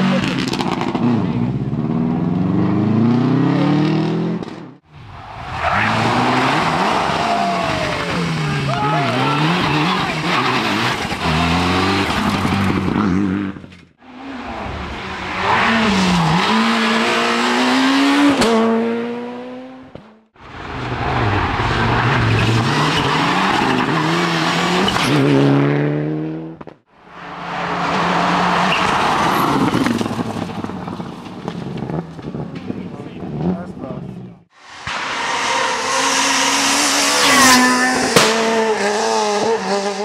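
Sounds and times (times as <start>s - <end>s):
rally car engines revving: 0.0s - 40.0s.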